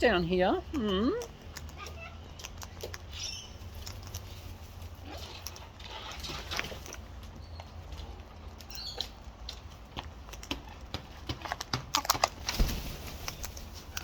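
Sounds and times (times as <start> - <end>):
beaks crunching seed: 0.0 - 14.0
bird chirp: 2.4 - 3.9, 7.3 - 7.8, 8.7 - 9.2.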